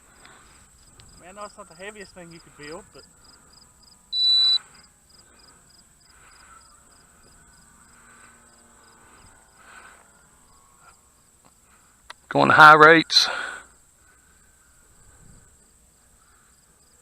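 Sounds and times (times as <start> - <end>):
crickets chirping: 0.0 - 17.0
high electronic beep: 4.1 - 4.6.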